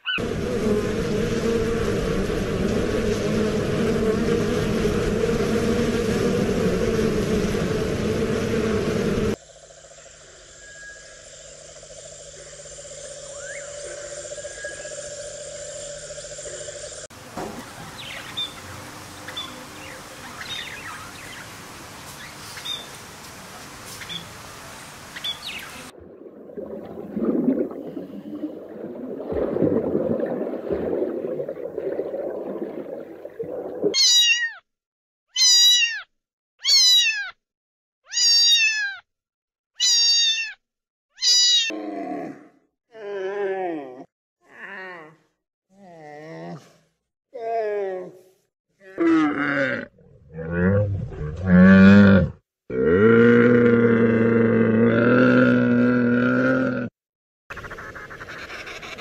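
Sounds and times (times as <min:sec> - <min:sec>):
steady hum: 0:00.2 - 0:10.1
faint chirps: 0:09.4 - 0:17.1
cat meowing: 0:35.4 - 0:36.0, 0:36.6 - 0:37.4, 0:38.1 - 0:39.0, 0:39.8 - 0:40.6, 0:41.2 - 0:41.7.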